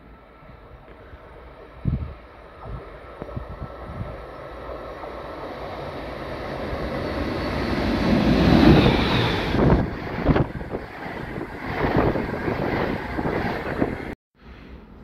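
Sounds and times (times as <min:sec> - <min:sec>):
train passing: 0:00.0 - 0:15.0
wind on microphone: 0:00.4 - 0:04.5, 0:06.5 - 0:14.2.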